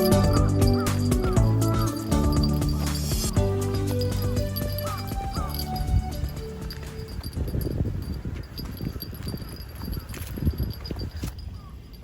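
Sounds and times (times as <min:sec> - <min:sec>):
cheerful music with light beat: 0:00.0 - 0:07.6.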